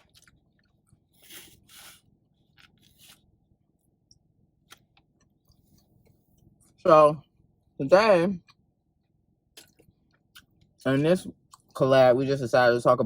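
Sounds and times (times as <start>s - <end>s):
person chewing food: 0.0s - 6.8s, 9.5s - 11.8s.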